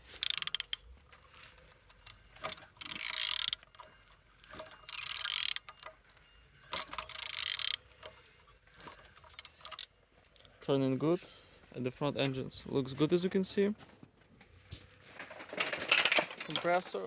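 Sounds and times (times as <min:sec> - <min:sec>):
engine turned over by hand: 0:00.0 - 0:09.9, 0:14.7 - 0:17.0
separate clicks: 0:00.0 - 0:10.5.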